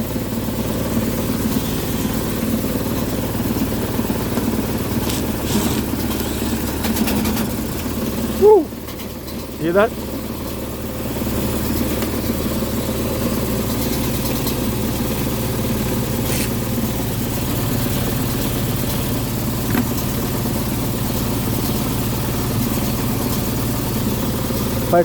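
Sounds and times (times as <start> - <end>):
blower humming and vibrating: 0.0 - 25.0.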